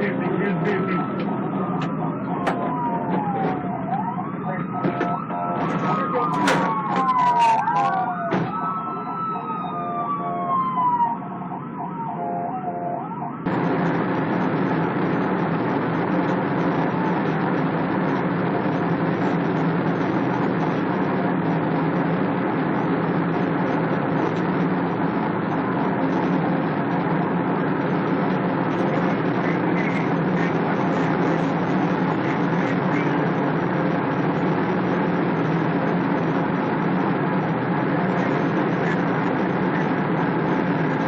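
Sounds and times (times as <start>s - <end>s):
vehicle engine drone: 0.0s - 41.0s
rushing noise: 13.4s - 41.0s.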